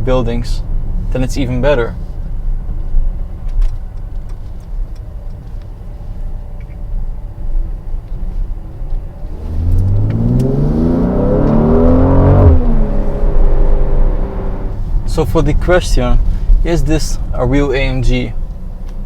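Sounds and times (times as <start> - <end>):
car engine revving: 8.6 - 15.0.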